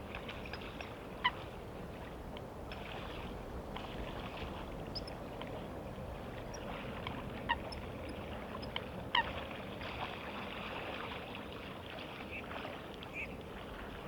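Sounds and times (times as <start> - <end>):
bird calls: 4.8 - 5.2.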